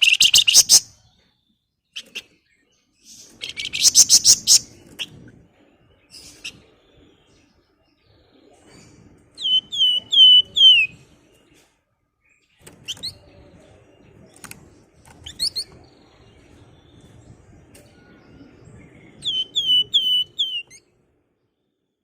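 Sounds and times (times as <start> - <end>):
bird sharp rising chirps: 3.4 - 4.8, 19.0 - 20.8
songbird whistled notes: 9.4 - 11.0, 17.8 - 20.8.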